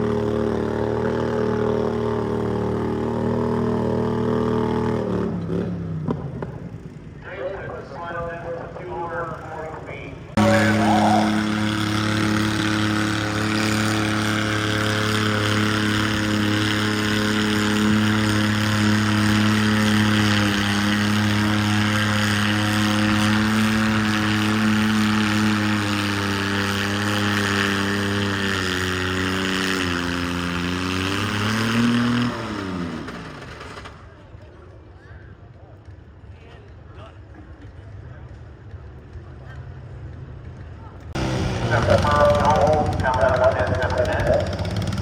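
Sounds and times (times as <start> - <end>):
tractor engine at high revs: 0.0 - 34.4, 39.0 - 45.0.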